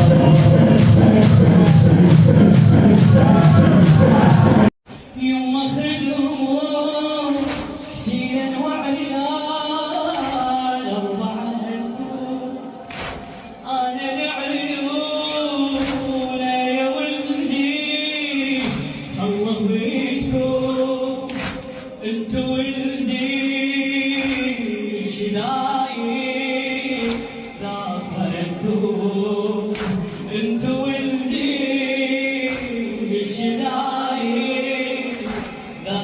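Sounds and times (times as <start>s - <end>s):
men singing mourning chant: 5.8s - 36.0s.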